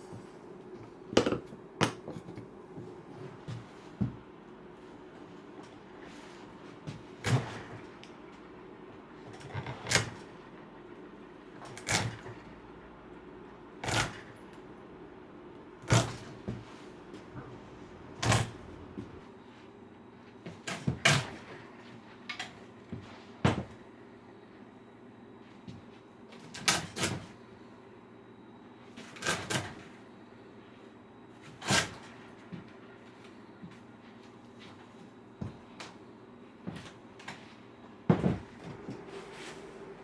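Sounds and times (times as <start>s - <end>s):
faint hum: 32.3s - 40.0s.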